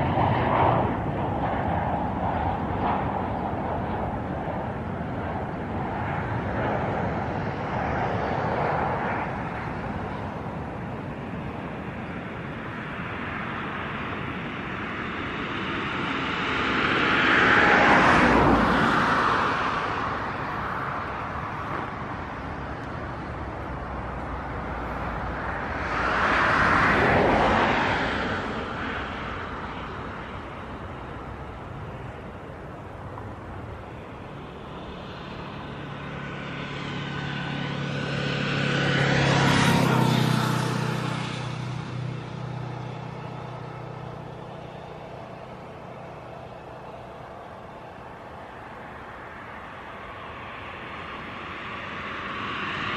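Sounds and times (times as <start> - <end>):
vehicle passing by: 13.0 - 32.4, 33.9 - 52.9.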